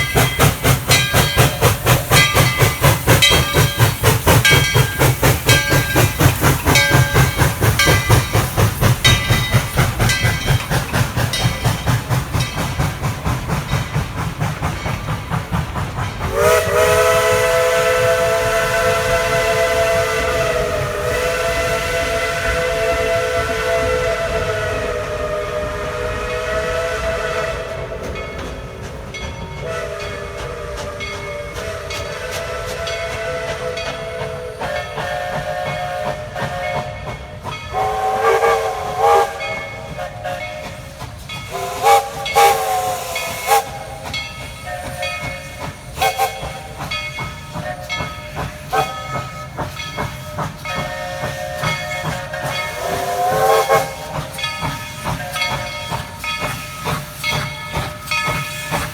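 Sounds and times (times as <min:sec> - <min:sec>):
locomotive exhaust beats: 0:00.0 - 0:58.9
steam hissing: 0:00.0 - 0:58.9
steam locomotive whistle blasts: 0:16.2 - 0:28.6, 0:29.5 - 0:58.9.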